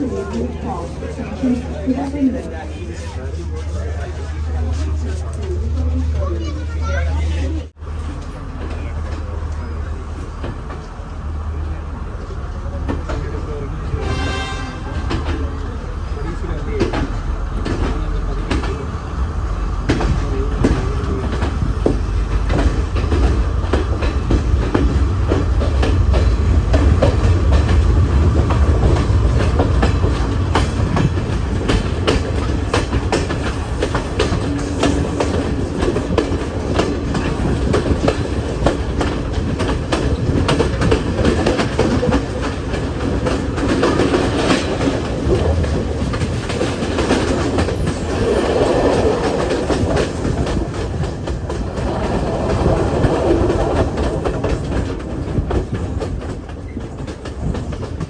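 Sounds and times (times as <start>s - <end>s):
train rumbling on rails: 0.0s - 58.0s
wheels clicking over rail joints: 19.9s - 58.0s.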